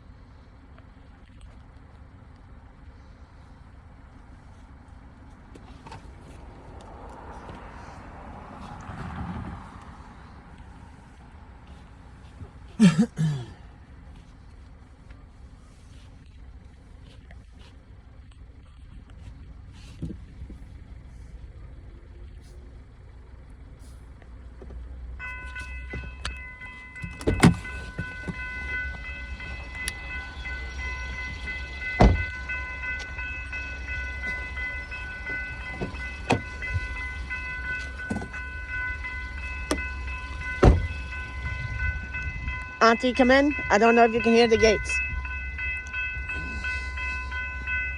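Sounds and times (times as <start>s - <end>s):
diesel locomotive rumble: 0.0s - 47.9s
railroad crossing warning bell: 24.9s - 47.9s.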